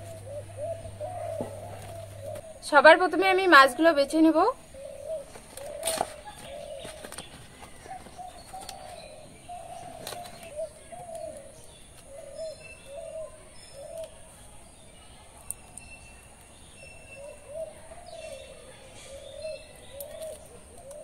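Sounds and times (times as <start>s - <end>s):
bird cooing: 0.0s - 14.4s, 17.0s - 21.0s
banana leaf crackling: 5.2s - 9.2s, 9.8s - 12.2s, 13.9s - 14.6s, 15.2s - 16.6s, 19.7s - 21.0s.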